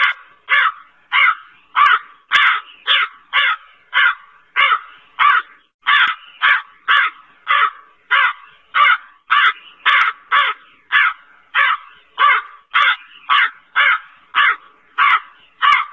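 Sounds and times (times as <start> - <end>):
crow cawing: 0.0 - 15.9.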